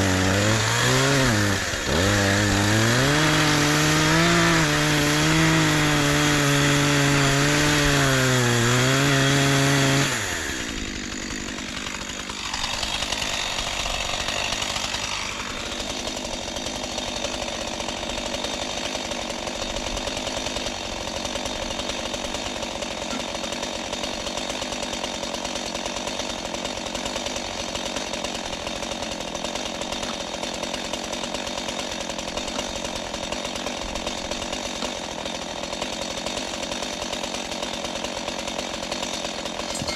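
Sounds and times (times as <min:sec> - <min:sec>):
chainsaw cutting and idling: 0:00.0 - 0:39.9.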